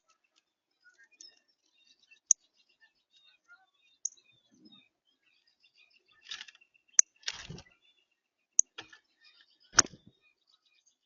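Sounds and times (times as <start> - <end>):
faint small bird chirps: 0.0 - 11.0.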